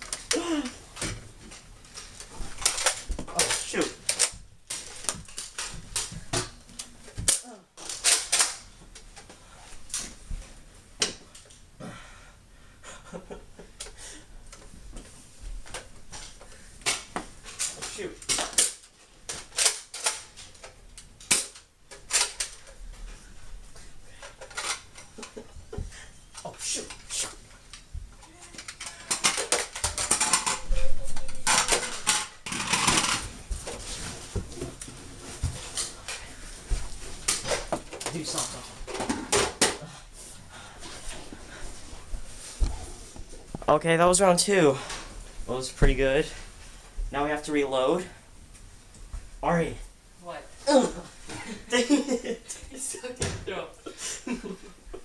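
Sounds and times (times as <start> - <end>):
toy blasters clicking and clattering: 2.6 - 6.1, 7.3 - 8.7, 17.5 - 22.7, 28.5 - 30.6, 31.2 - 33.2.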